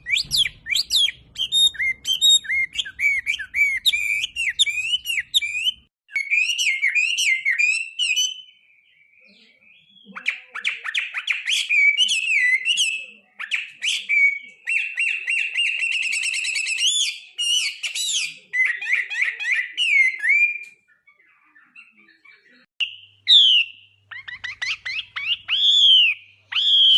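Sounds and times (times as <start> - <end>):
songbird singing: 0.0 - 26.9.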